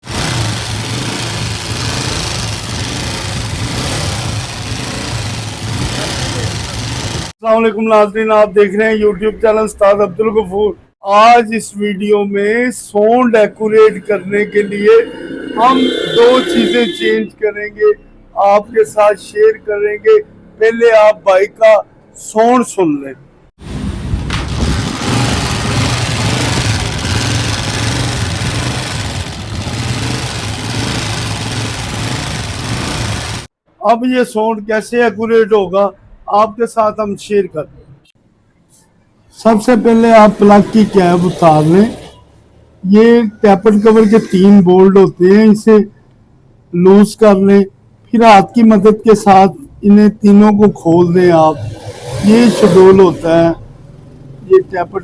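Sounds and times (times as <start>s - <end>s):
mechanical tappet clatter: 0.0s - 7.3s
motorcycle engine idling: 0.2s - 7.3s, 25.7s - 33.5s.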